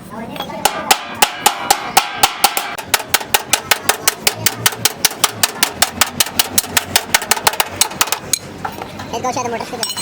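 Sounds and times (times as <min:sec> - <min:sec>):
hammer blows on sheet metal: 0:00.6 - 0:08.3.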